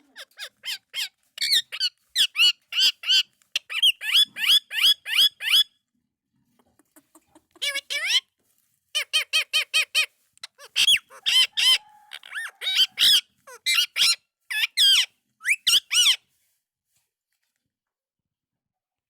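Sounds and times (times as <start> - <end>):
parakeet chirps: 0.1 - 5.7, 9.0 - 16.2
parakeet harsh squawks: 9.0 - 16.2.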